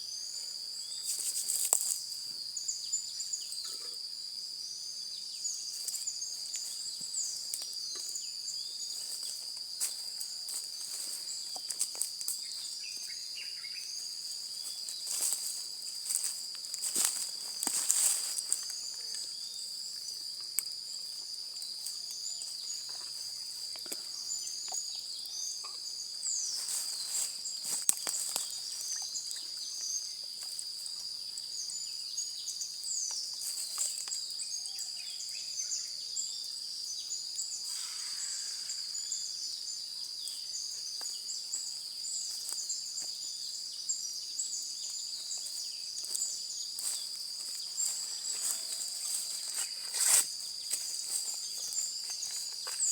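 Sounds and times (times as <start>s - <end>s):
high-pitched insect drone: 36.9s - 42.8s, 45.4s - 52.9s.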